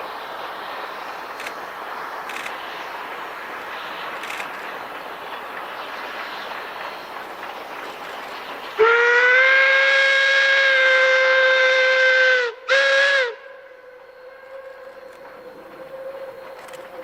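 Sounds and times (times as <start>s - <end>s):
train running: 0.0s - 17.0s
steam whistle blasts: 8.8s - 17.0s.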